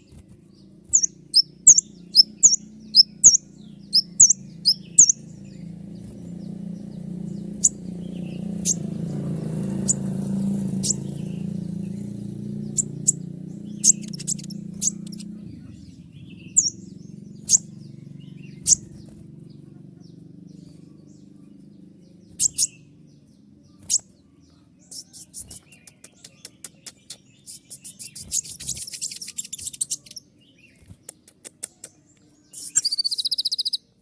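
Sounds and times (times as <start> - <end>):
sunbird sharp high calls: 0.9 - 6.2, 6.9 - 19.2, 22.3 - 22.9, 31.7 - 33.9.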